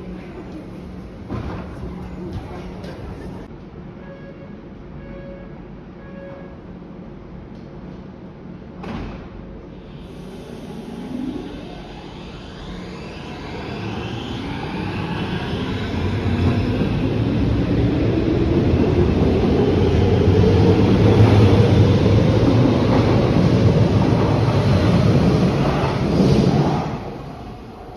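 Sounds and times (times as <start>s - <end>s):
electric train accelerating: 9.7s - 27.9s.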